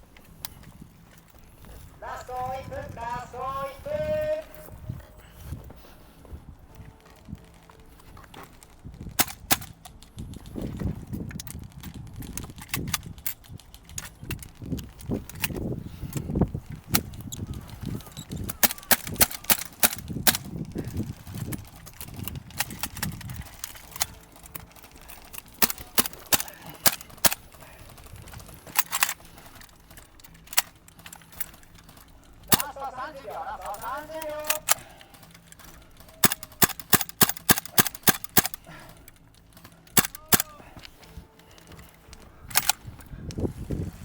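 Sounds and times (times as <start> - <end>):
airsoft guns firing: 2.0 - 4.5, 18.4 - 20.9, 21.6 - 40.8
low rumble of movement: 4.7 - 32.5.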